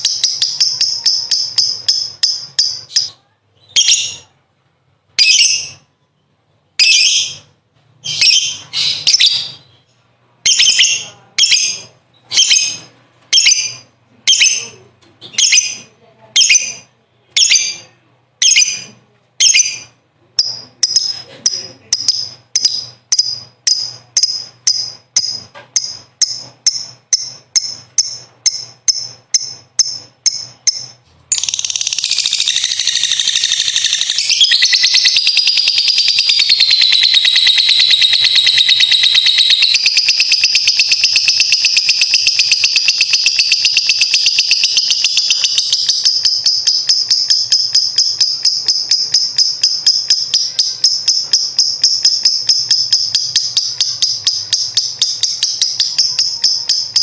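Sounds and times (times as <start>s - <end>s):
lovebird chirping and trilling: 0.0s - 4.4s, 5.1s - 6.0s, 6.7s - 57.0s.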